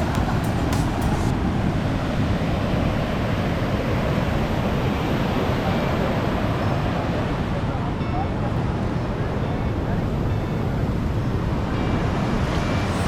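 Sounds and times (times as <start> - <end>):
sea surf washing on shore: 0.0 - 13.0.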